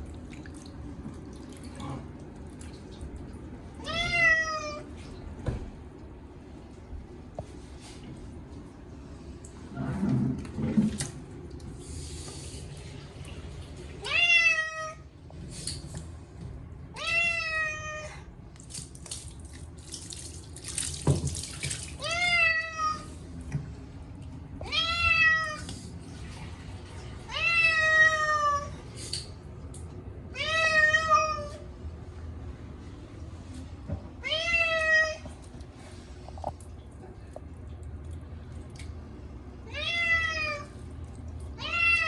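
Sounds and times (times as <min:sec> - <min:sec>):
cat meowing loudly: 0:03.8 - 0:04.8
water running from tap: 0:18.6 - 0:22.2.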